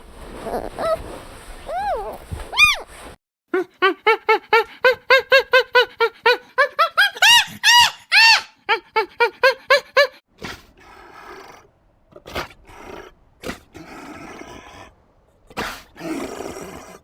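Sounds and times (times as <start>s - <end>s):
animal rasping growls: 10.4s - 17.0s.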